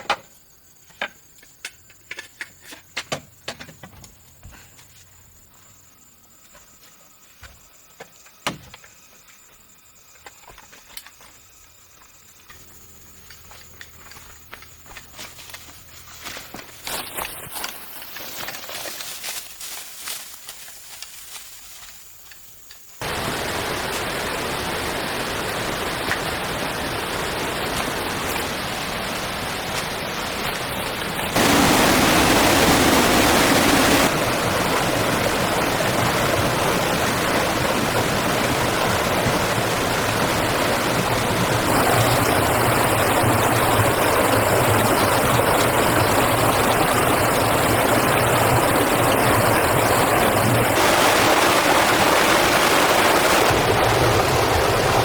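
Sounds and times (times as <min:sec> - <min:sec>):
rushing water: 0:23.0 - 0:55.0.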